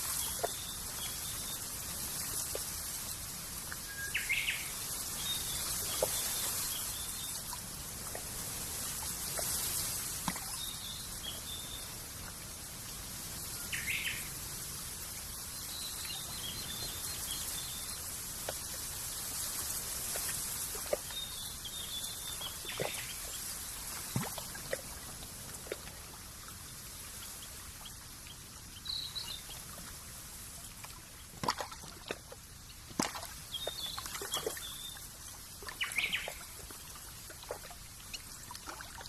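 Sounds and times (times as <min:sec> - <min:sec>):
steady high hiss: 0:00.0 - 0:31.3
soft water plops: 0:09.2 - 0:10.7, 0:23.9 - 0:26.2, 0:30.8 - 0:39.0
small birds chirping: 0:20.9 - 0:24.2, 0:35.7 - 0:36.7.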